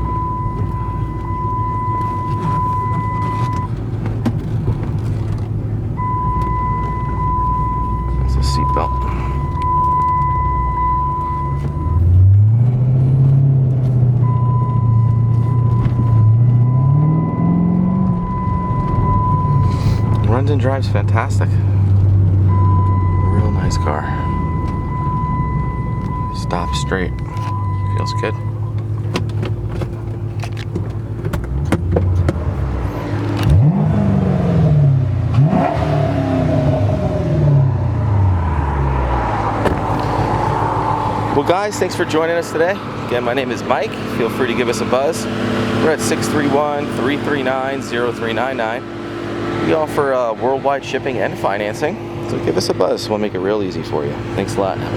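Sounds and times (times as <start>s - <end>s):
seatbelt warning tone: 0.0s - 3.8s, 6.0s - 12.3s, 13.7s - 21.4s, 22.4s - 29.0s
car engine accelerating: 0.0s - 54.9s.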